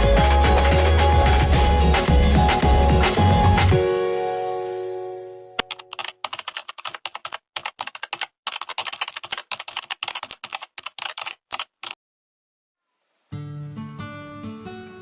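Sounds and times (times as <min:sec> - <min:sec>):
keyboard typing clicks: 0:05.6 - 0:12.0.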